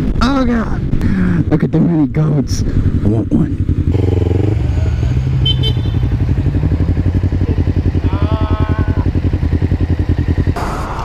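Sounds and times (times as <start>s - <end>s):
motorcycle engine running: 2.4s - 11.0s.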